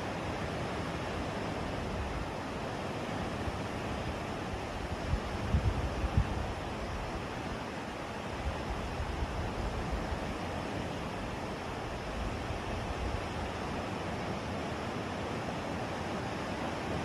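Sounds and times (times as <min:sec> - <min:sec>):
wind buffeting microphone: 0:04.8 - 0:07.2.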